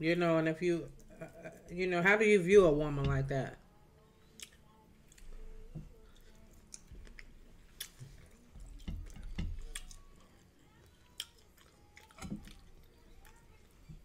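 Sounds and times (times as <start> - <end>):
wet chewing: 4.3 - 13.7.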